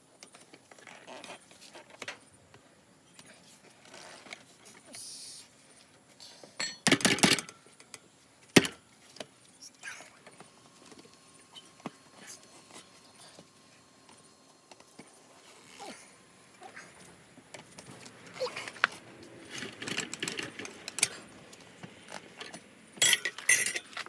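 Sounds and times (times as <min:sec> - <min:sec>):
metal hand tools clattering: 0:23.0 - 0:24.0.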